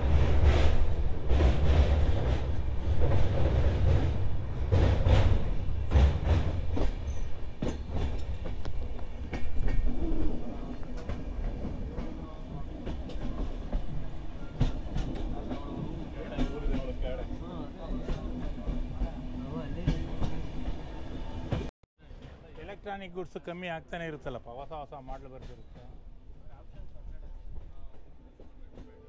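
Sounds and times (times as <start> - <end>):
train rumbling: 0.0 - 29.0
wheels clicking over rail joints: 0.4 - 20.5.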